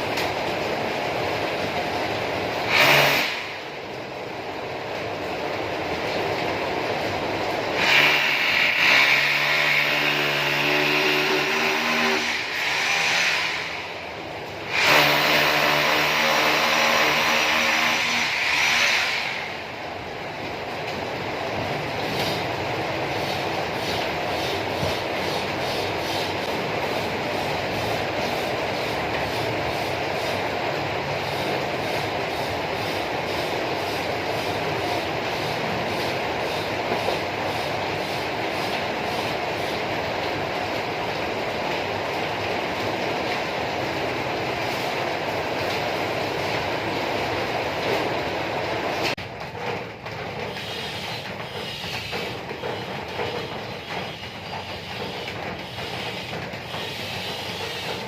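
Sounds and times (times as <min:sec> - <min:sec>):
small motor running with hiss: 0:02.7 - 0:03.4, 0:07.8 - 0:13.7, 0:23.2 - 0:30.5, 0:50.6 - 0:58.0
steady noise: 0:07.0 - 0:49.2.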